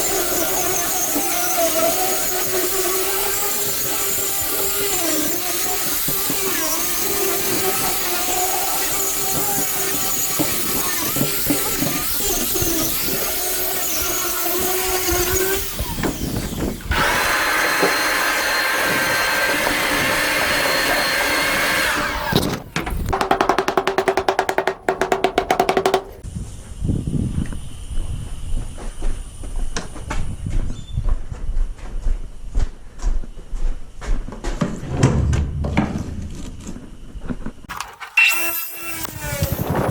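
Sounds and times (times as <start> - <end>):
electric grinder on wood: 0.0 - 22.3.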